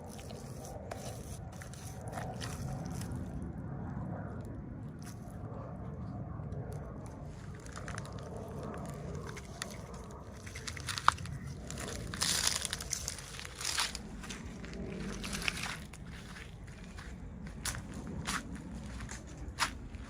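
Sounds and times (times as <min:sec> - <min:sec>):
packaging crinkling: 0:07.5 - 0:14.2.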